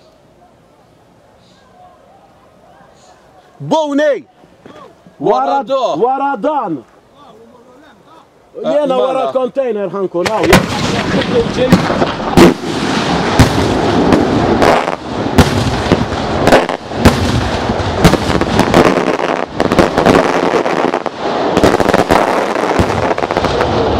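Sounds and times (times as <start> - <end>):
continuous fireworks din: 10.2 - 23.9
fireworks bursting with sharp bangs: 10.2 - 23.9.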